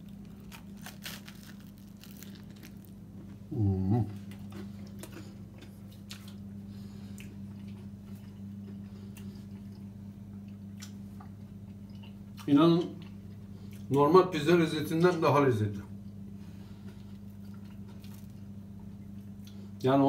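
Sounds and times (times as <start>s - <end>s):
man chewing crunchy food: 0.0s - 13.9s, 16.7s - 19.6s
steady low hum: 0.0s - 20.0s
man humming: 3.5s - 4.3s.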